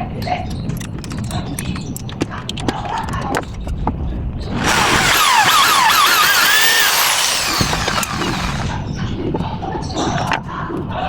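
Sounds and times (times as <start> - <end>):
small power tool whining: 4.5 - 8.8.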